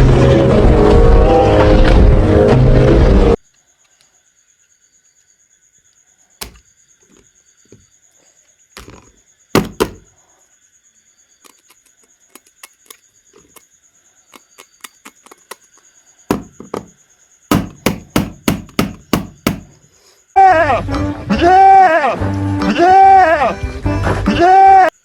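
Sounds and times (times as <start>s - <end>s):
objects knocking and clicking: 6.4s - 7.8s, 8.8s - 10.1s, 11.4s - 13.6s, 14.3s - 19.8s.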